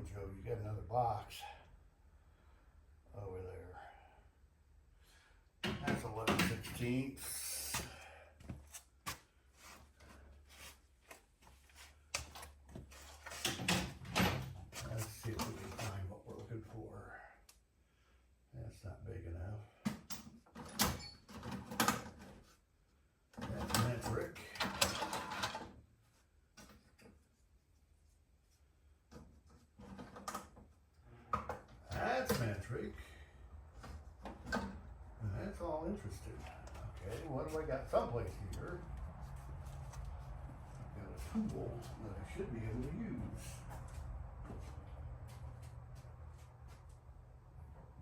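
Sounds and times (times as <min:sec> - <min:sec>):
faint low hum: 0:26.5 - 0:48.0.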